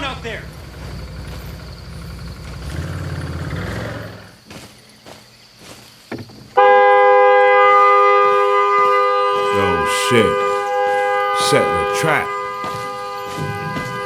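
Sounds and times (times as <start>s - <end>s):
vehicle horn blaring: 6.6s - 14.0s.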